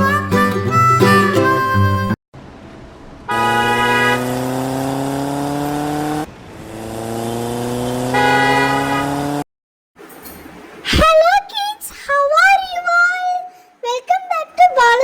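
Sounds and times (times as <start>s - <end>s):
car engine accelerating: 2.4s - 9.5s.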